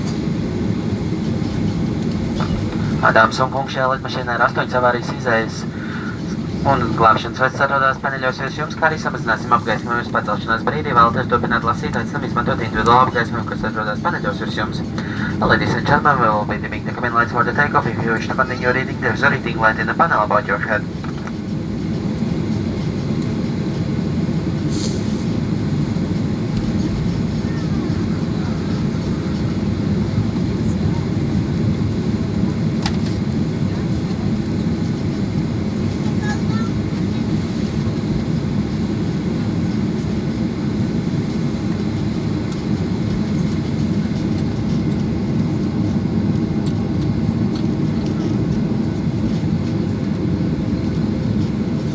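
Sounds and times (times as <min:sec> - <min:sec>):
airplane cabin engine rumble: 0:00.0 - 0:51.9
brief hiss: 0:24.7 - 0:25.4.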